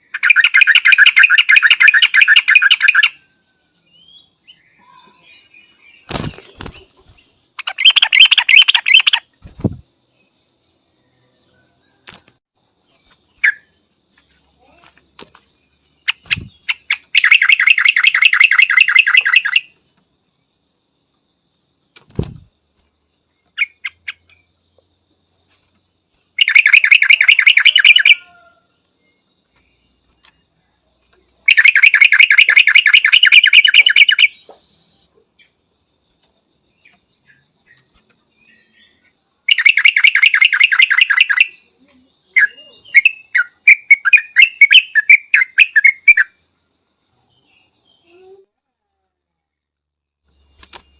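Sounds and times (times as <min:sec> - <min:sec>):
soft bird chirps: 0:00.0 - 0:49.6, 0:50.2 - 0:50.9
bird chattering: 0:07.6 - 0:09.8, 0:16.0 - 0:19.7, 0:26.4 - 0:28.3, 0:31.4 - 0:34.4, 0:39.5 - 0:41.6.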